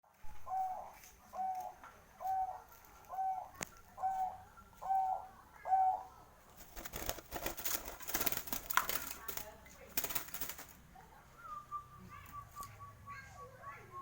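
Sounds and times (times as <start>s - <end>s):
rustling crackling noise: 0.0s - 4.4s, 6.4s - 11.0s
dove cooing: 0.3s - 8.4s, 10.1s - 14.0s.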